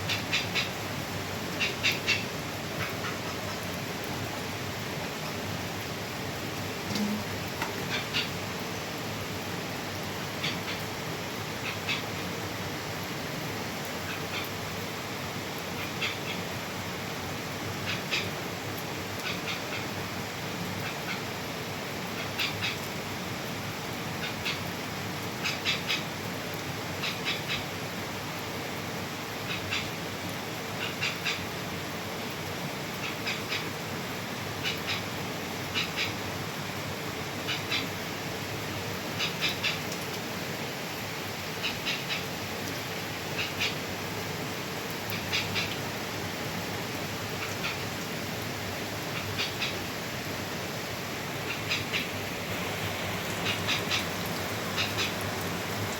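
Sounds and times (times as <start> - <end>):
small animals chirping: 53.3 - 55.2.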